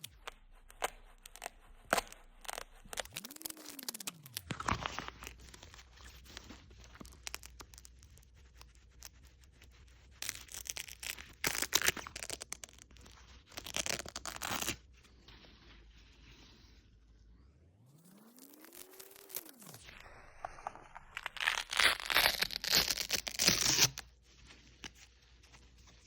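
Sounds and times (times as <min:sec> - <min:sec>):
hook-and-loop fastener ripping: 0:00.0 - 0:09.2, 0:10.2 - 0:14.8, 0:18.2 - 0:24.1.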